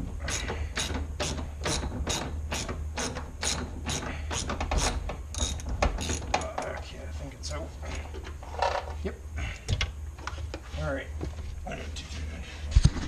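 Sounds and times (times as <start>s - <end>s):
ratchet wrench clicking: 0.3s - 6.3s.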